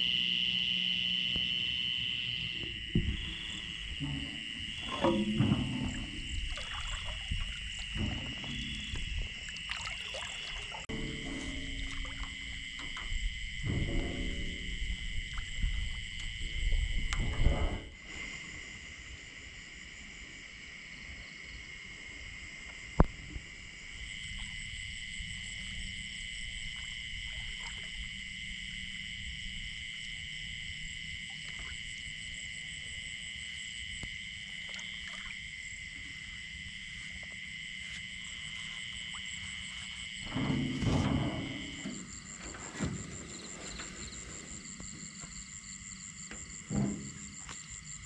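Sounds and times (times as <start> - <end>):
crickets and insects trilling: 0.0 - 48.0
loud low noise: 10.9 - 17.9.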